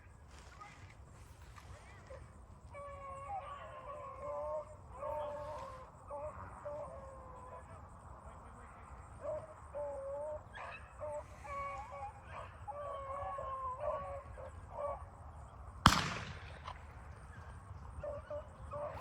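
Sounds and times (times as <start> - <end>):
hounds baying: 1.6 - 16.0, 17.0 - 19.0
shotgun shot: 15.8 - 17.0.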